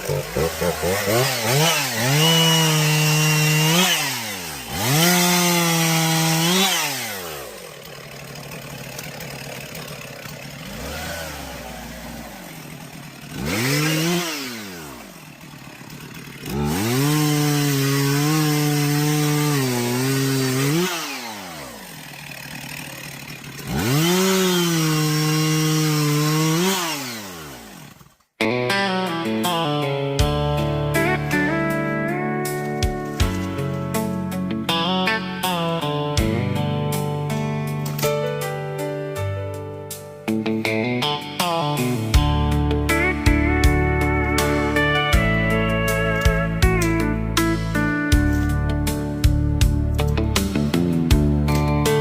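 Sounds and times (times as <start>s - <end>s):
chainsaw cutting wood: 0.0s - 39.4s, 40.2s - 52.0s
slide guitar music: 28.4s - 52.0s.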